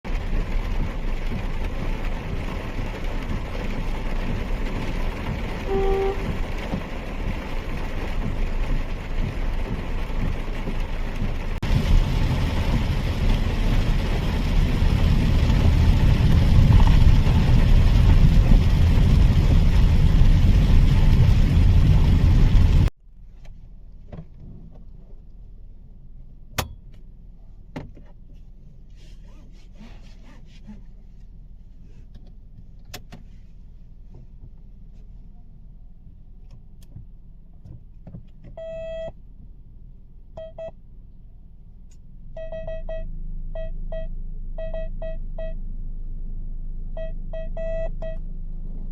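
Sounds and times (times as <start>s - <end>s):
tyres and rain rushing: 0.1s - 22.9s
deep rumble: 0.1s - 27.7s, 38.6s - 48.9s
electronic tone: 47.0s - 48.2s.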